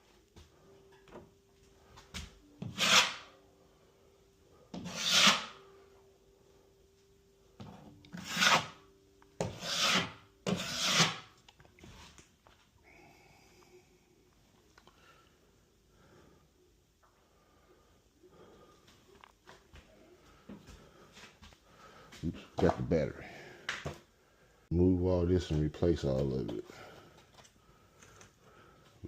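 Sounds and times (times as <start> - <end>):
faint steady hum: 0.0 - 29.0
hand tool scraping drywall: 2.6 - 3.2, 4.8 - 5.6, 8.2 - 8.8, 9.4 - 11.3.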